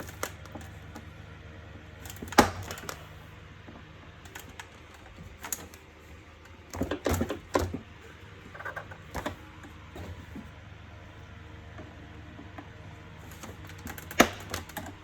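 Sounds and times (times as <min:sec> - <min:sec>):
plastic parts clicking and knocking: 0:02.0 - 0:03.2, 0:04.3 - 0:07.9, 0:13.3 - 0:15.0.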